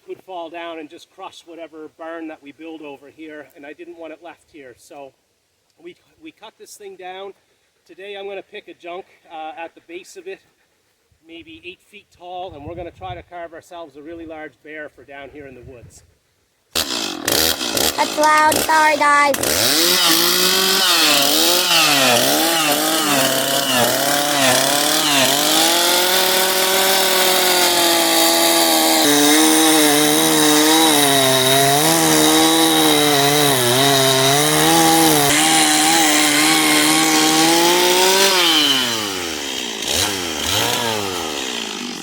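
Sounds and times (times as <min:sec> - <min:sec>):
chainsaw cutting wood: 0:16.7 - 0:42.0.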